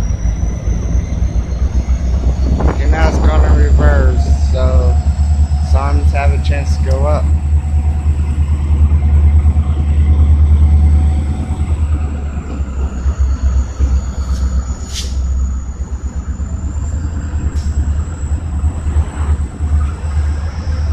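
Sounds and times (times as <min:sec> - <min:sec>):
train rumbling: 0:00.0 - 0:20.9.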